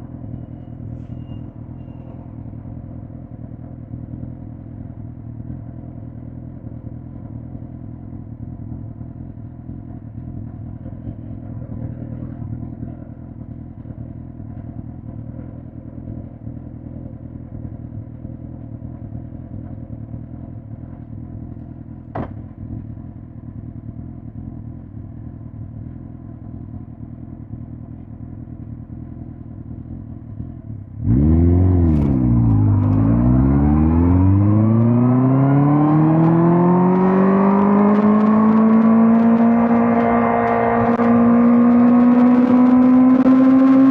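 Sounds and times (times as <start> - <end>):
motorcycle engine revving: 30.3 - 43.9.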